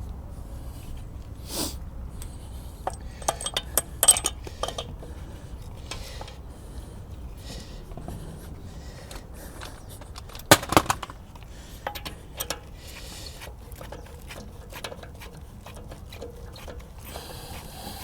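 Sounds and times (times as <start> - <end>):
small hard objects knocking: 9.6 - 11.3.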